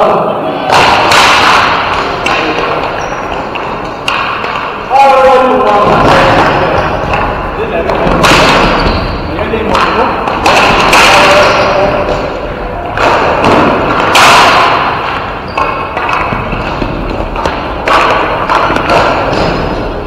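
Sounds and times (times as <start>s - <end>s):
sticks and players hitting rink boards: 0.0s - 20.0s
ball thudding: 5.6s - 19.9s.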